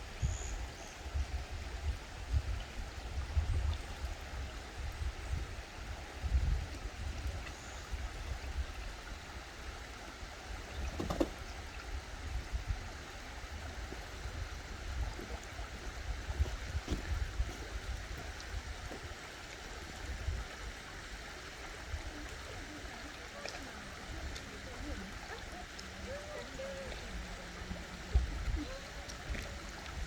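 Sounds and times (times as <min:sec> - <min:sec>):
stream water flowing: 0:00.0 - 0:30.0
ducks splashing in water: 0:10.4 - 0:11.9, 0:14.9 - 0:19.2.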